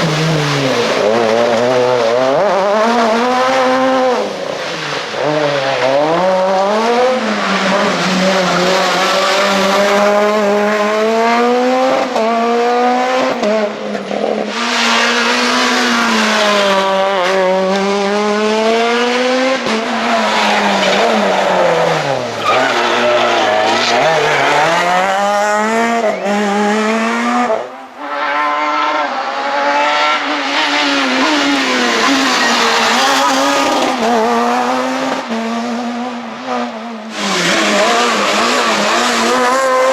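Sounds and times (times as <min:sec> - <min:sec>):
rally car engine revving: 0:00.0 - 0:39.9.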